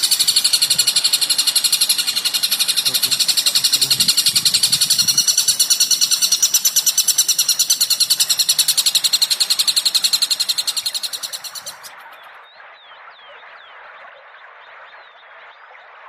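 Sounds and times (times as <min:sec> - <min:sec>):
bird trilling high notes: 0:00.0 - 0:12.0.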